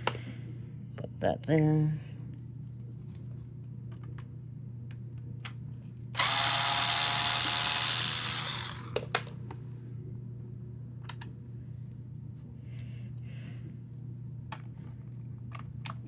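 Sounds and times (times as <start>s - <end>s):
electric screwdriver whirring: 6.2s - 9.1s.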